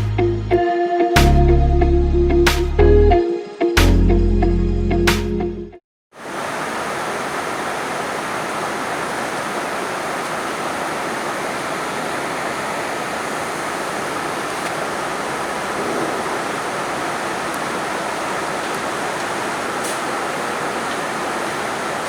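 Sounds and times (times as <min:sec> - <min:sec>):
music: 0:00.0 - 0:05.8
steady rain: 0:06.1 - 0:22.0.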